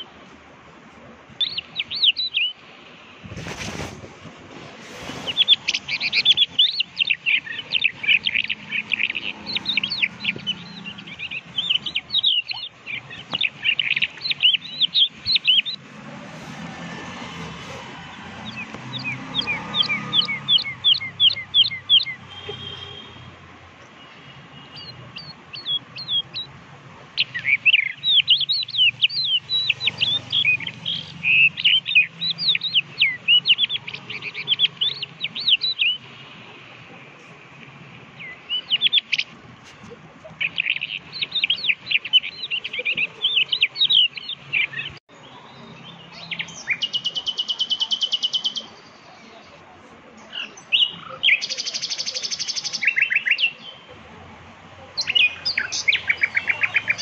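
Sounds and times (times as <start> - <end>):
songbirds chirping: 0.0 - 57.0
rapid buzzy bird trills: 4.9 - 23.3.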